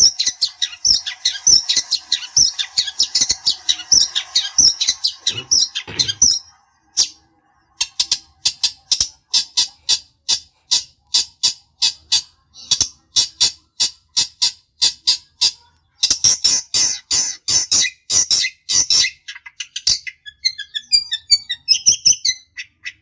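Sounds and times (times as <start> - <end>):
harsh bird calls: 0.0 - 23.0
shrike chattering warble: 0.2 - 12.1.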